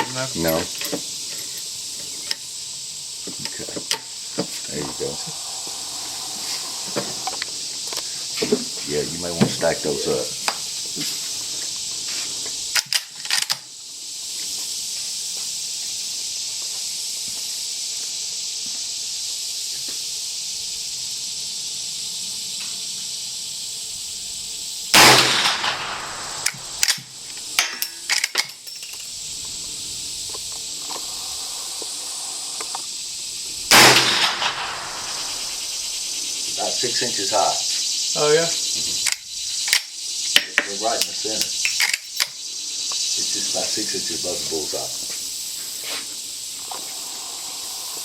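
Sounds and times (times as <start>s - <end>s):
high insect drone: 0.0s - 48.0s
rifle shots with echo: 25.0s - 26.5s, 33.7s - 35.3s.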